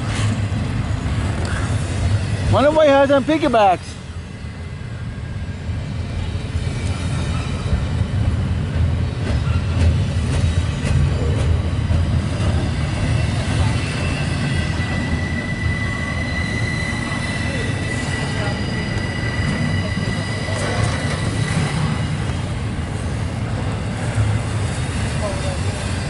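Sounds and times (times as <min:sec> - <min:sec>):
steel wheels rumbling on rail: 0:00.0 - 0:26.0
high wheel squeal: 0:00.9 - 0:08.1, 0:09.3 - 0:22.5.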